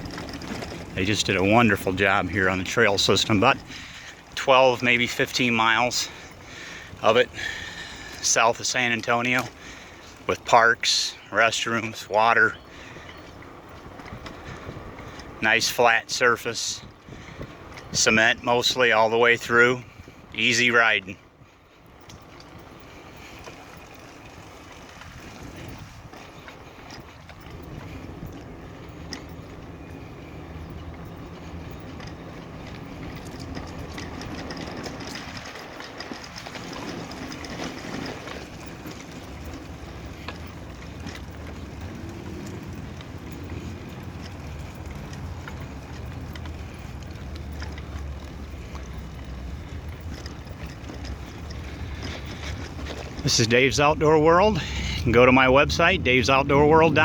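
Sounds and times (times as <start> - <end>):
bicycle clicks and rattles: 0.0 - 57.0
bicycle tyres rumbling on concrete: 0.0 - 57.0
wind noise on microphone: 12.9 - 15.4, 16.8 - 18.2, 24.3 - 47.2.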